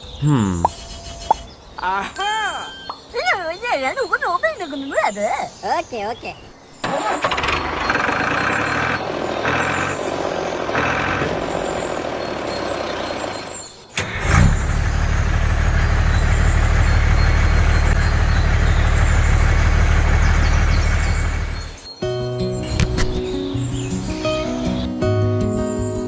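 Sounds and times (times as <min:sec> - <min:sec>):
beeps: 0:00.6 - 0:01.5, 0:02.2 - 0:03.1
heavy vehicle engine: 0:06.9 - 0:24.8.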